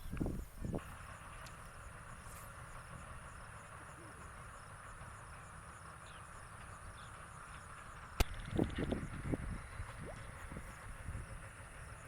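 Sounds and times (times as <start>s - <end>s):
insects chirping: 0.0s - 12.0s
low rumble: 8.2s - 12.0s.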